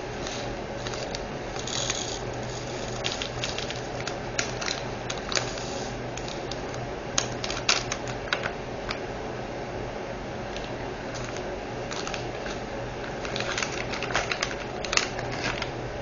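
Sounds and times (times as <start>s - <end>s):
low steady hum: 0.0s - 16.0s
plastic bag rustle: 0.2s - 6.7s, 11.1s - 15.7s.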